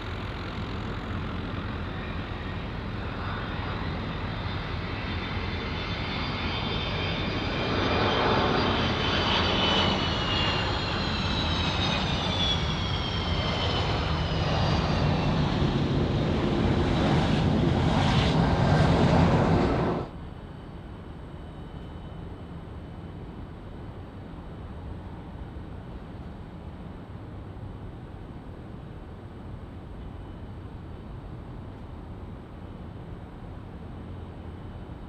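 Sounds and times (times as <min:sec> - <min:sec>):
jet airliner passing: 0:00.0 - 0:20.3.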